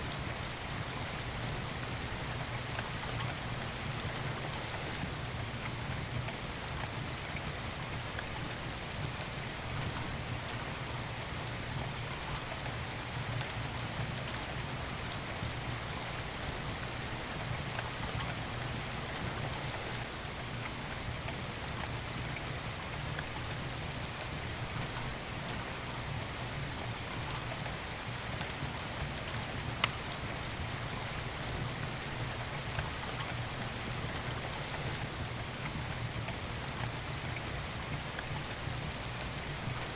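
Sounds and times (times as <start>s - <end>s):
steady rain falling: 0.0s - 39.9s
wood fire crackling: 28.4s - 35.8s.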